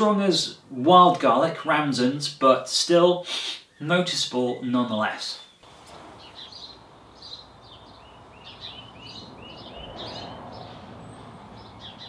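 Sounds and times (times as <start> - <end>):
outdoor ambience hiss: 0.0 - 12.0
birds chirping and singing: 5.3 - 12.0.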